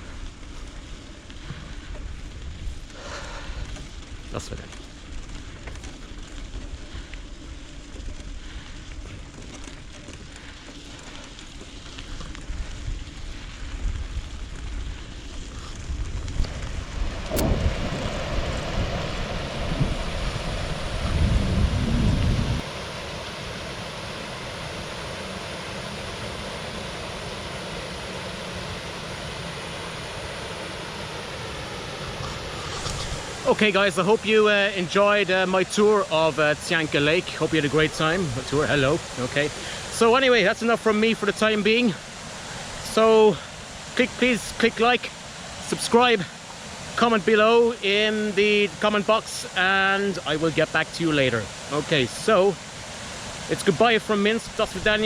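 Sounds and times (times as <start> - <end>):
steady hiss: 0.0 - 55.0
wind buffeting microphone: 11.3 - 22.8.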